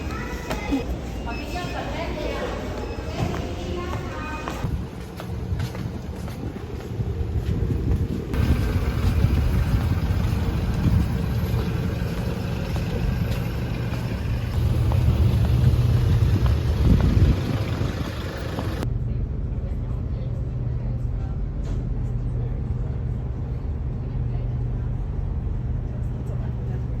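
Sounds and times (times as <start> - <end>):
low engine rumble: 2.6 - 27.0
road or water noise: 5.0 - 18.9.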